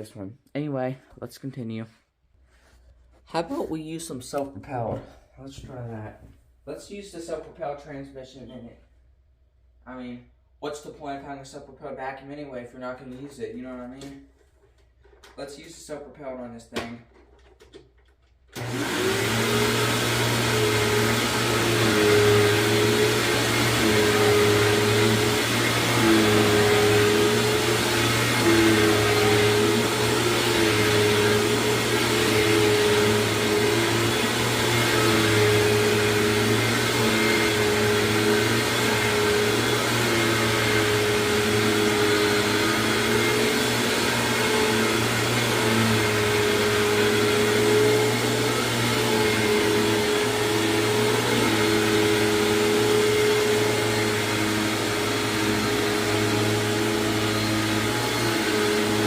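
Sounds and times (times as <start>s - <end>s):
upright vacuum cleaner running: 18.5s - 59.0s.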